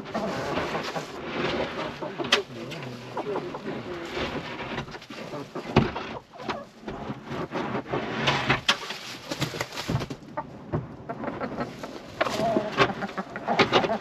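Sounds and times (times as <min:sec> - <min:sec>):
chickens clucking softly: 0:00.0 - 0:04.2, 0:10.3 - 0:14.0.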